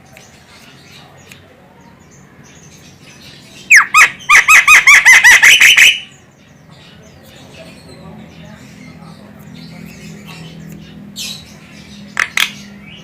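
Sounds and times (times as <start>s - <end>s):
myna bird calling rapidly: 2.7s - 6.3s.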